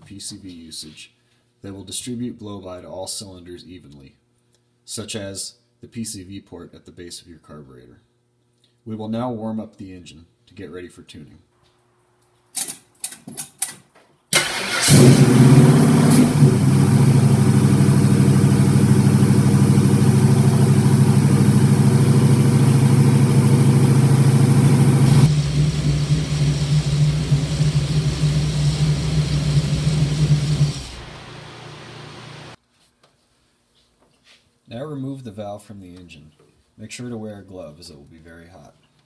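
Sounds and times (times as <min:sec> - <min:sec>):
car engine cranking and idling: 0:14.4 - 0:32.6.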